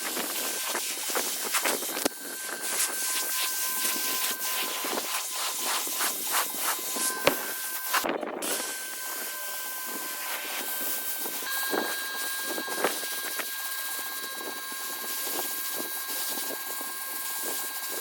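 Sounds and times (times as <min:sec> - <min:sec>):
motor whine: 0:00.0 - 0:18.0
pressure washer spraying water: 0:00.0 - 0:18.0.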